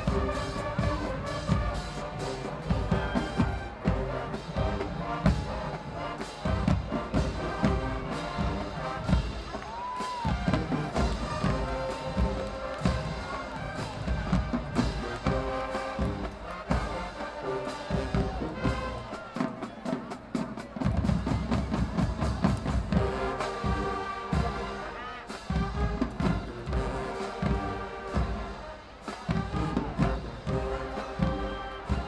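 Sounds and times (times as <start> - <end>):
brass playing sustained chords: 0.0 - 9.5.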